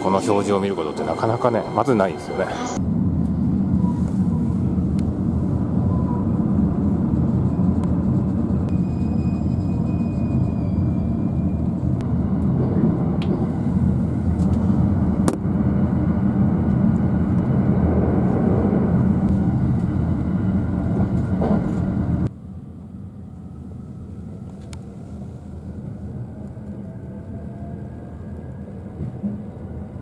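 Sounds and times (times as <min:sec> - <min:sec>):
train wheels rumbling on rails: 0:00.0 - 0:22.3.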